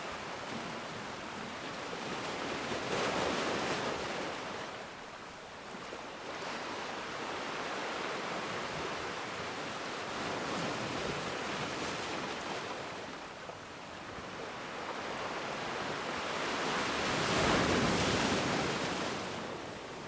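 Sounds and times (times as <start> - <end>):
ocean waves on shore: 0.0 - 20.0.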